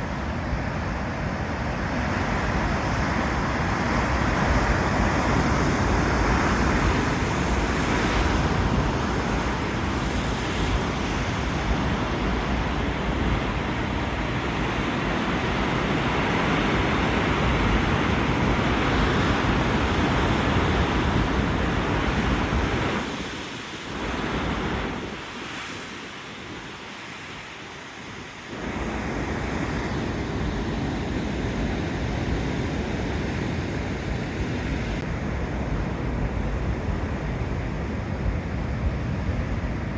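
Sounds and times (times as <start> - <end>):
wind buffeting microphone: 0.0 - 27.3
sea waves on rocky shore: 0.0 - 39.9.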